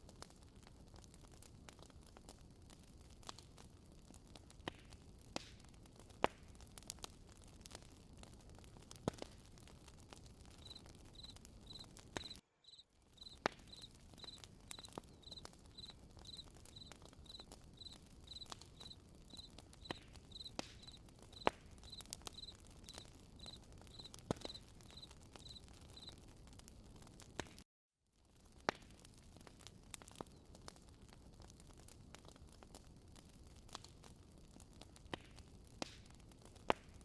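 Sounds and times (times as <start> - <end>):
campfire crackling and popping: 0.0 - 27.6, 28.2 - 37.0
cricket chirping: 10.6 - 26.1.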